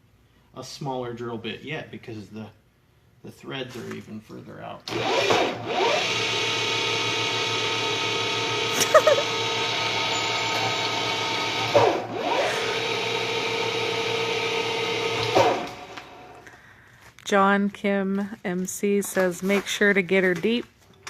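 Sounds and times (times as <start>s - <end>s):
machine tool motor humming: 4.9s - 16.4s.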